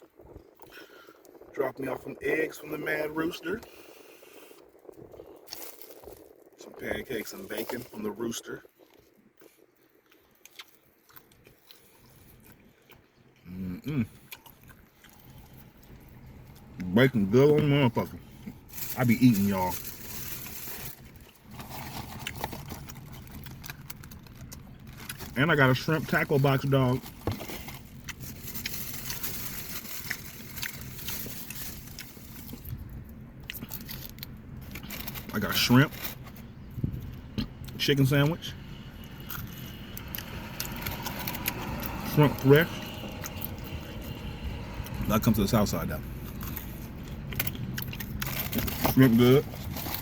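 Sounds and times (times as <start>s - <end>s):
low background hum: 0.0s - 50.0s
chewing and biting food: 8.6s - 17.0s, 19.3s - 25.4s, 45.9s - 50.0s.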